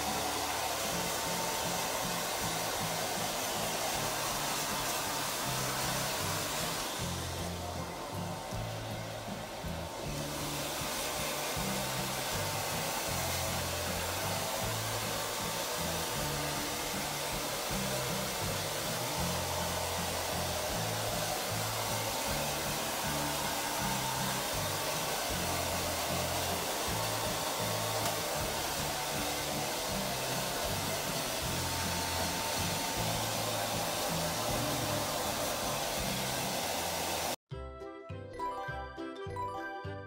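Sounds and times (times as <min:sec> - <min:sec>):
hair dryer blowing: 0:00.0 - 0:37.5.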